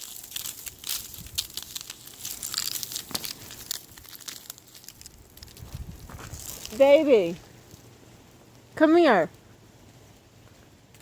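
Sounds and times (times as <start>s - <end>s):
sharp ice crack: 0.0s - 6.8s
frost and ice crackling: 0.0s - 11.0s.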